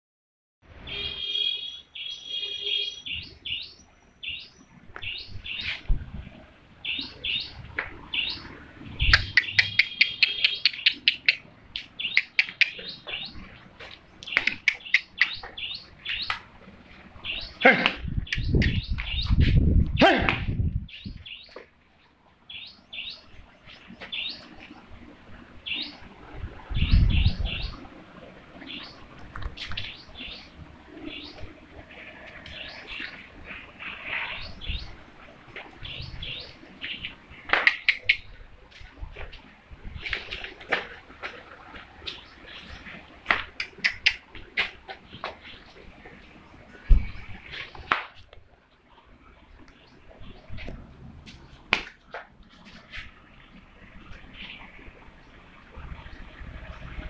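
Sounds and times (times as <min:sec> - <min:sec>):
small birds chirping: 0:00.9 - 0:05.9, 0:06.8 - 0:16.5, 0:17.2 - 0:20.1, 0:20.7 - 0:26.1, 0:28.6 - 0:39.0, 0:42.0 - 0:48.0.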